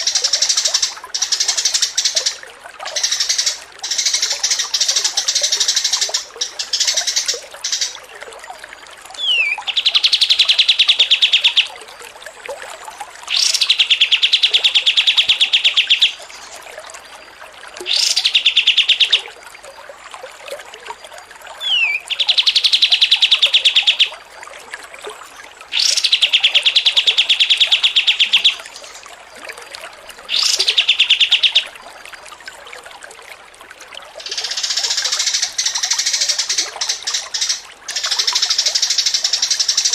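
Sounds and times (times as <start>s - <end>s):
songbird whistle and buzzing trill: 9.2s - 11.7s, 21.6s - 24.2s.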